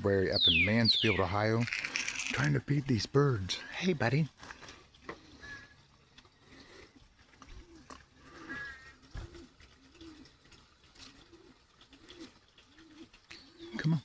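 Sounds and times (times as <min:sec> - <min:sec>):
bird chirp: 0:00.1 - 0:02.5, 0:12.1 - 0:14.0
bird cooing: 0:05.2 - 0:05.8, 0:07.4 - 0:14.0.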